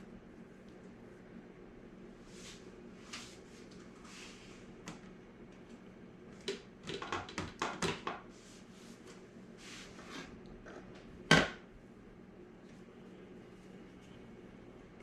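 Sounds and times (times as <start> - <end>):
soft scrapes of cookie dough: 2.2 - 4.7, 8.3 - 10.4.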